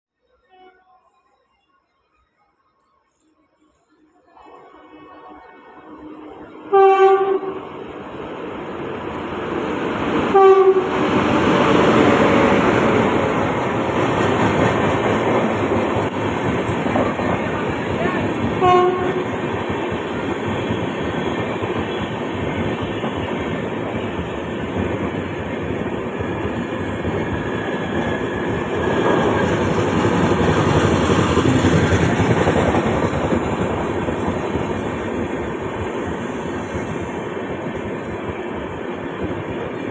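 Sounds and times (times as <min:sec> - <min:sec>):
train wheels on rails: 0:06.0 - 0:39.9
train horn blasts: 0:06.7 - 0:07.7, 0:10.3 - 0:11.2, 0:18.6 - 0:19.3.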